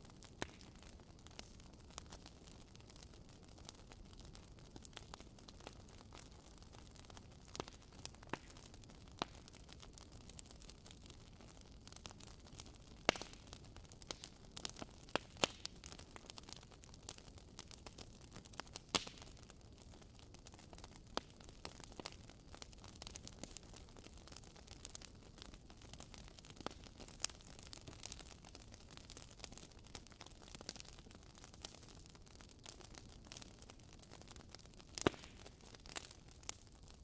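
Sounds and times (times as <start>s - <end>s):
wood fire crackling and popping: 0.0s - 37.0s.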